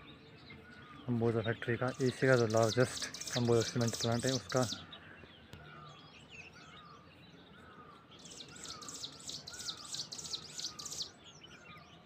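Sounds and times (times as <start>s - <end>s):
rapid high bird chirping: 1.8s - 4.9s, 8.2s - 11.2s.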